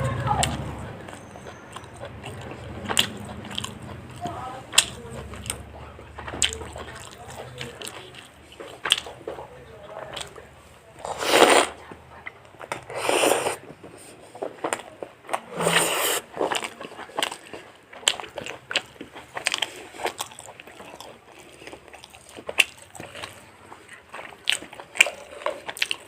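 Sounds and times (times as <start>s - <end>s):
crunching and chewing: 0.0s - 26.0s
biting and tearing chicken: 14.3s - 26.0s.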